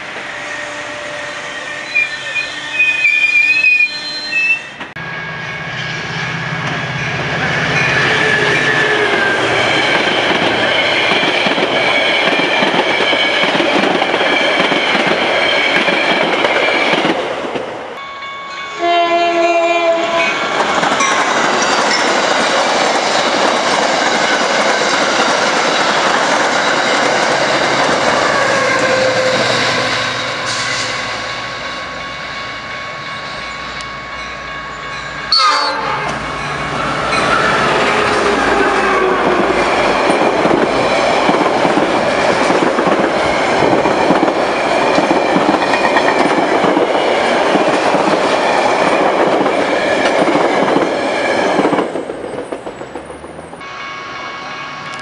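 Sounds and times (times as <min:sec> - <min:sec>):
train horn: 0:00.0 - 0:05.7, 0:18.0 - 0:20.4, 0:28.2 - 0:31.9, 0:35.3 - 0:36.2, 0:53.6 - 0:55.0.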